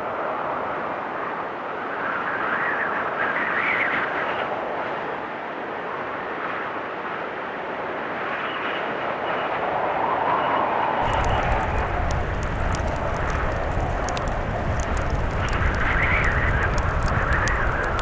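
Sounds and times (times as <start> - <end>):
blizzard wind howling: 11.0 - 18.0.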